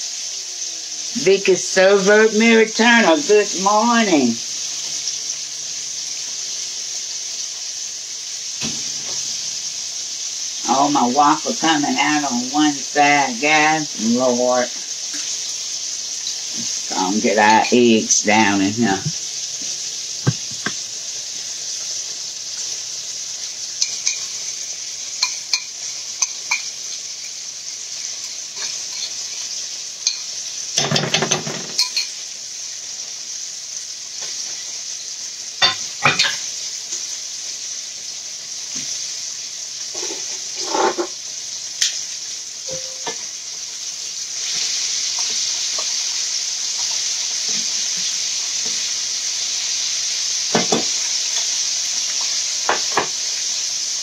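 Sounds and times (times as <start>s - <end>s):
food sizzling in hot oil: 0.0s - 54.0s
utensils clinking on cookware: 17.2s - 19.0s, 23.8s - 27.4s, 28.2s - 32.2s, 35.6s - 36.5s, 39.9s - 41.2s, 42.7s - 43.2s, 50.5s - 51.5s.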